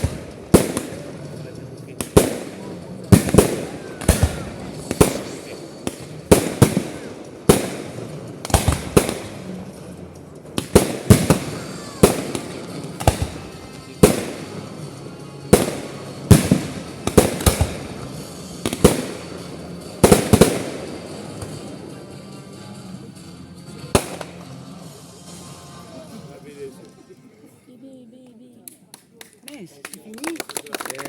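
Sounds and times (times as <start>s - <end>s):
firework shells bursting: 0.0s - 21.7s.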